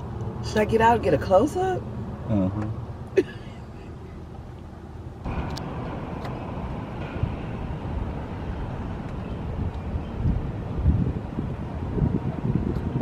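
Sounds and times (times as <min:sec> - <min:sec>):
low traffic noise: 0:00.0 - 0:13.0
wind on microphone: 0:05.3 - 0:13.0.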